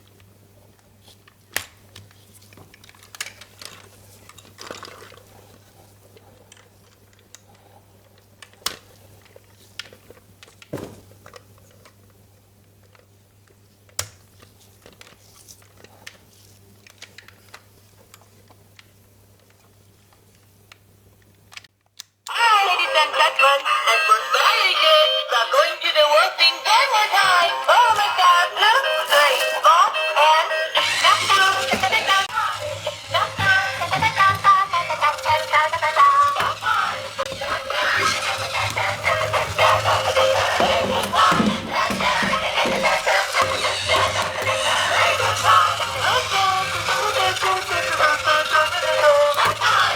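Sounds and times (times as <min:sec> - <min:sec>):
plastic packaging rustle: 0:00.9 - 0:07.2
tinny song with high singing: 0:25.2 - 0:49.9
plastic toy knock: 0:36.3 - 0:44.4.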